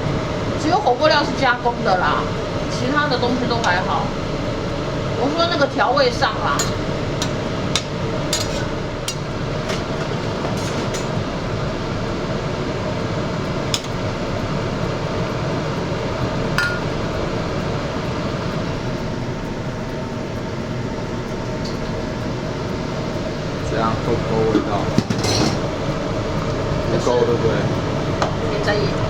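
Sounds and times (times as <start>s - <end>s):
utensils clinking against cookware: 6.5s - 11.2s, 16.6s - 16.9s, 24.5s - 25.7s.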